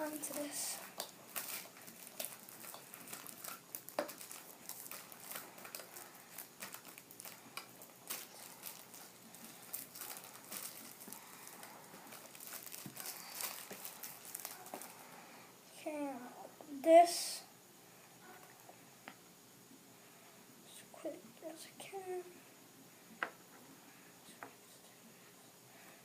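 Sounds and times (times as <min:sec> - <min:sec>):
packaging crinkling: 0:00.0 - 0:15.0
small crackles and clicks: 0:00.0 - 0:15.1.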